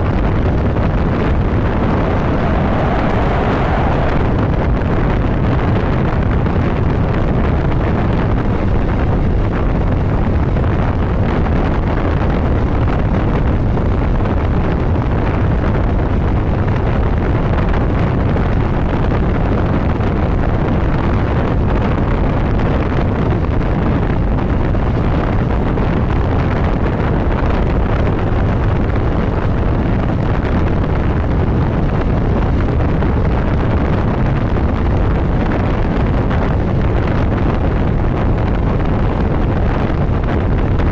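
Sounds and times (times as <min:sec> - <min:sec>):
road noise: 0:00.0 - 0:06.0
wind buffeting microphone: 0:00.0 - 0:40.9.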